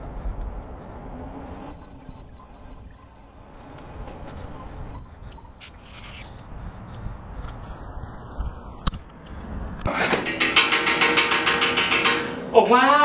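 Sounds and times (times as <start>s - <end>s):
low road rumble: 0.0s - 12.8s
bicycle brakes squealing: 1.5s - 6.4s.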